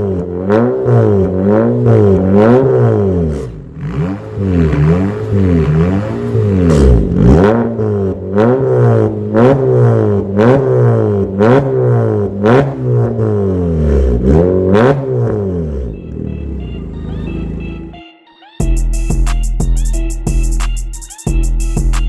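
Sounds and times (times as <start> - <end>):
exhaust cracks: 0.0 - 16.2
car engine revving: 0.0 - 18.0
music: 15.9 - 22.0.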